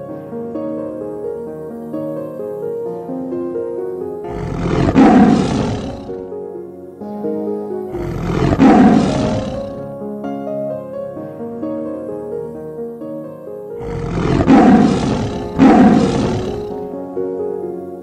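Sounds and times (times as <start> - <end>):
tiger roaring: 4.2 - 6.3, 7.9 - 10.0, 13.8 - 16.9.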